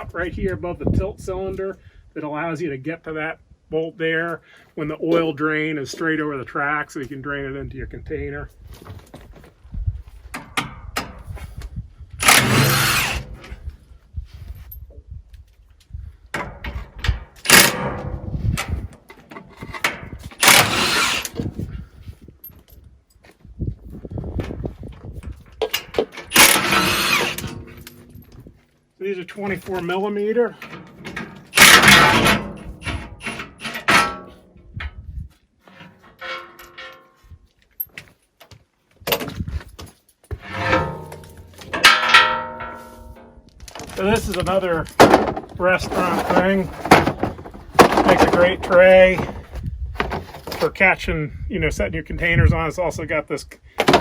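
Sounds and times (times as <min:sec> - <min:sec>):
impact wrench bursts: 0:12.2 - 0:13.4, 0:20.4 - 0:21.4, 0:26.2 - 0:27.9, 0:31.5 - 0:33.9
tools clanking on metal: 0:12.2 - 0:13.7, 0:16.4 - 0:21.7, 0:25.2 - 0:28.6, 0:29.3 - 0:34.5, 0:35.7 - 0:38.1, 0:39.1 - 0:50.7, 0:53.8 - 0:54.0.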